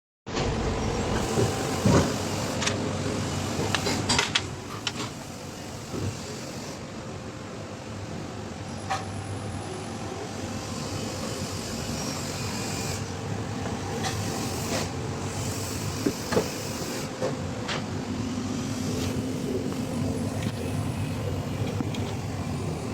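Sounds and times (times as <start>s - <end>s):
mechanical hum: 0.3s - 22.9s.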